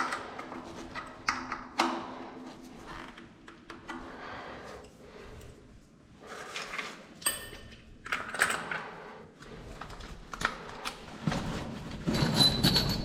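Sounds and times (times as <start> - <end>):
hard parts clicking and clinking: 6.4 - 9.0, 9.7 - 13.0.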